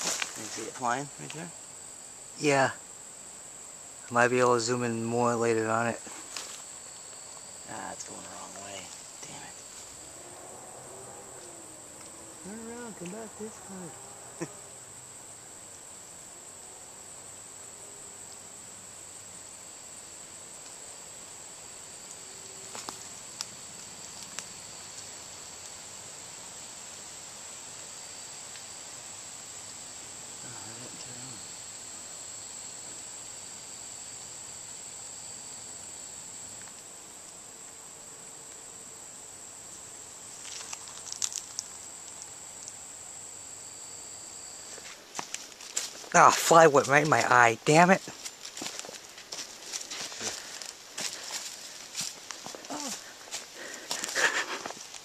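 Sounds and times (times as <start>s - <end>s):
high-pitched insect chorus: 0.0s - 55.0s.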